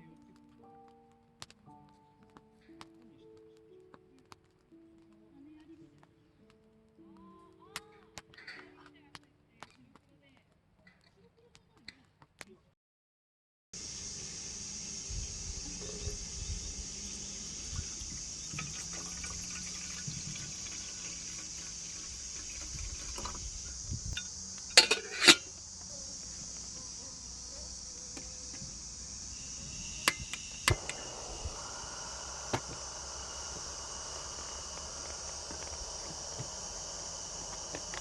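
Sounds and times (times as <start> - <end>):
high-pitched insect chirring: 13.8 - 38.0
cooking gear clinking: 18.3 - 25.6.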